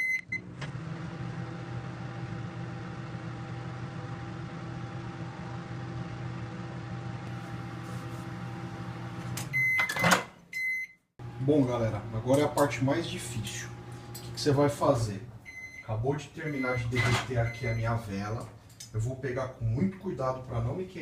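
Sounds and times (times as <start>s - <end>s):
microwave oven humming: 0.0s - 15.8s.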